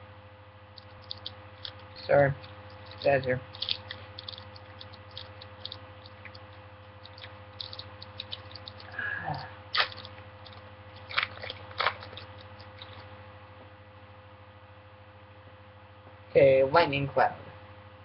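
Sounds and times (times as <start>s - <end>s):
low electrical hum: 0.0s - 18.0s
foil wrapper crinkling and tearing: 0.8s - 9.0s, 9.7s - 13.1s.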